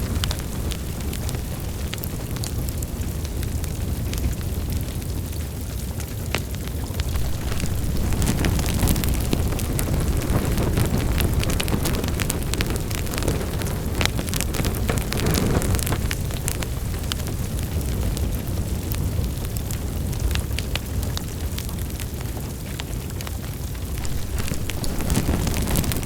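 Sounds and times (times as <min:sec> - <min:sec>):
burning logs crackling: 0:00.0 - 0:26.0
flames roaring: 0:00.0 - 0:26.0.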